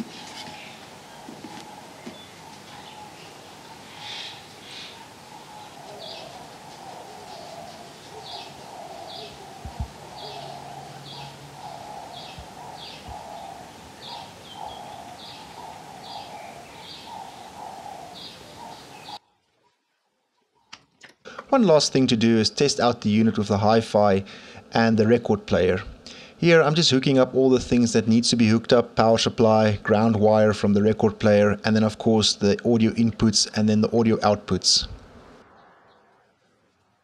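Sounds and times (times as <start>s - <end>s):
bird chirps with lower call: 0.1s - 19.2s.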